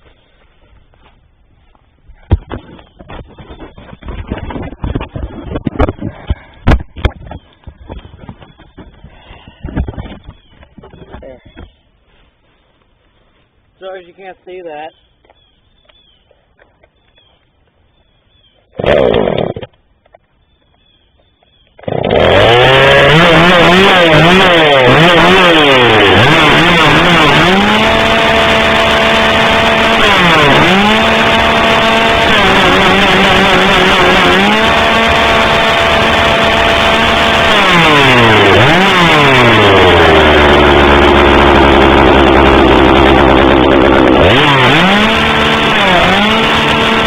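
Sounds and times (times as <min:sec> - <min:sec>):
chainsaw engine revving: 0:18.8 - 0:19.8, 0:21.8 - 0:47.0.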